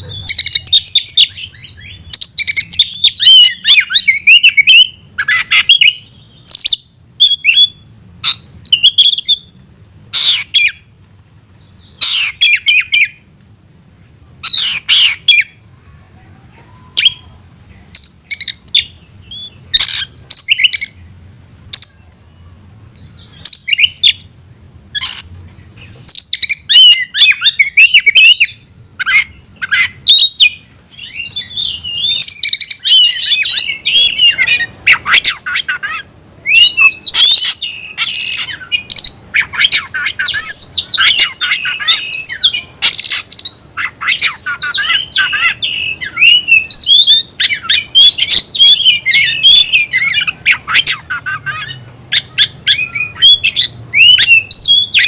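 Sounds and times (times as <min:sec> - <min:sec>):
magpie-robin singing: 0:00.0 - 0:09.6, 0:10.2 - 0:10.9, 0:11.6 - 0:13.3, 0:14.4 - 0:15.6, 0:16.7 - 0:21.1, 0:21.7 - 0:24.3, 0:24.9 - 0:55.0.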